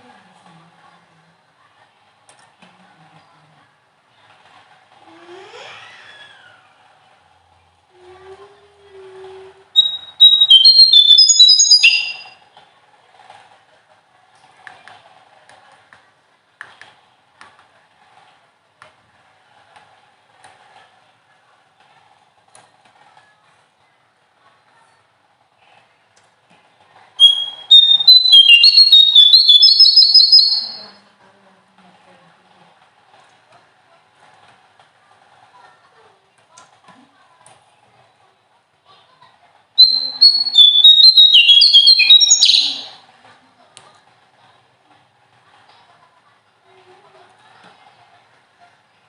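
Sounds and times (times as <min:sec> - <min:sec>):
songbird whistling rapid notes: 0:09.8 - 0:12.4, 0:27.2 - 0:31.0, 0:39.8 - 0:43.0.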